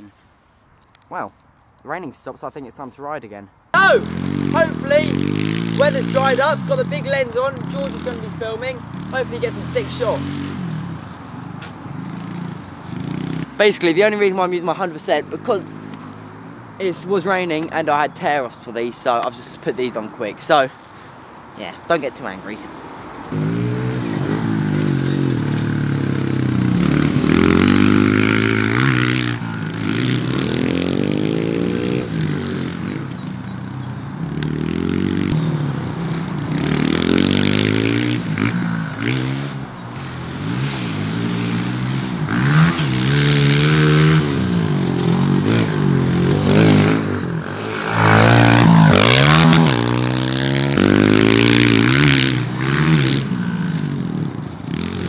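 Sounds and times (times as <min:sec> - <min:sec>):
motorbike engine revving: 0:03.8 - 0:11.0, 0:11.8 - 0:13.6, 0:23.3 - 0:55.0.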